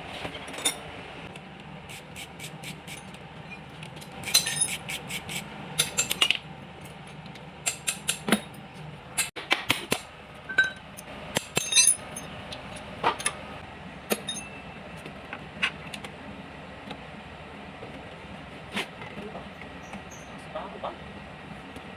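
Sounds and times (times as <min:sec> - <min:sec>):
metal tools clinking: 0:04.2 - 0:04.9, 0:11.4 - 0:13.4, 0:14.1 - 0:14.6.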